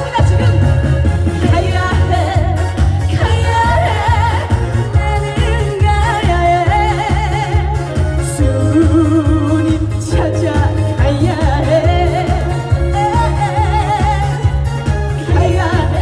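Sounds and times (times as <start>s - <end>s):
backing music with bass beat: 0.0s - 16.0s
woman singing with vibrato: 0.0s - 16.0s.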